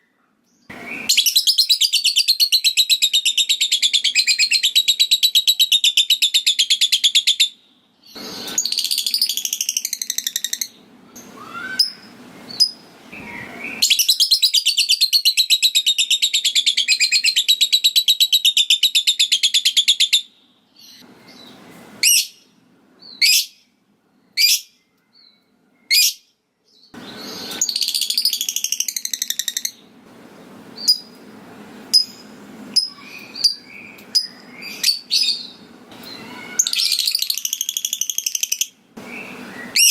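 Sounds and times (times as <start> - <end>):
bird high chattering: 32.8 - 38.7.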